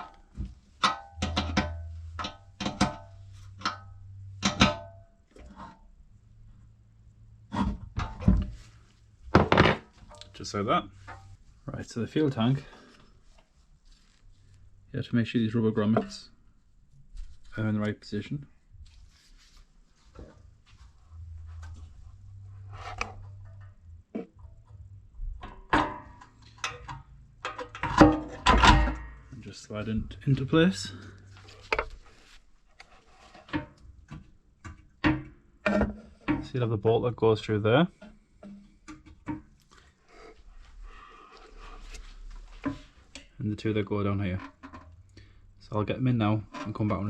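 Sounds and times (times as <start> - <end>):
dull knocks of metal parts: 0.0 - 5.6, 25.4 - 29.4
low steady hum: 0.0 - 47.0.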